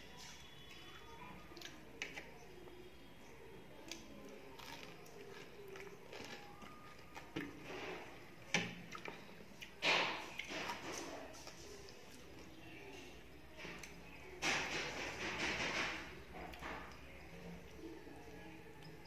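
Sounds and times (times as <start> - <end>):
person chewing food: 3.8 - 12.6.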